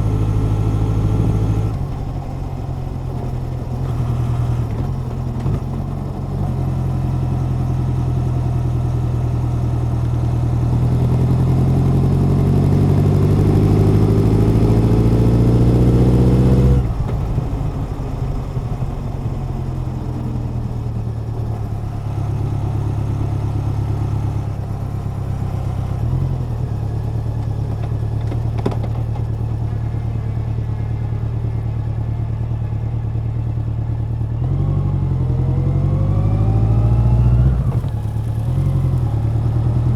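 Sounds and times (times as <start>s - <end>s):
motorcycle engine revving: 8.0s - 29.8s.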